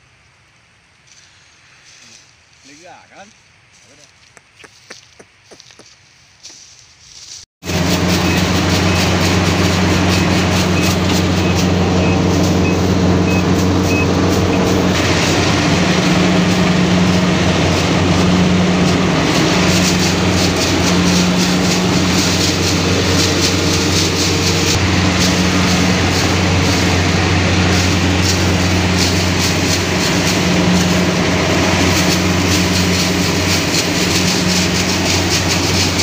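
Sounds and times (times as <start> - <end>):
combine harvester running: 7.6 - 36.0.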